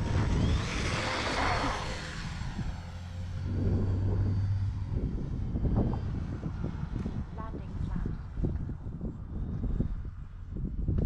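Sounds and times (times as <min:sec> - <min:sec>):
rc plane motors buzzing: 0:00.0 - 0:07.2
wind rumble on microphone: 0:00.0 - 0:11.0.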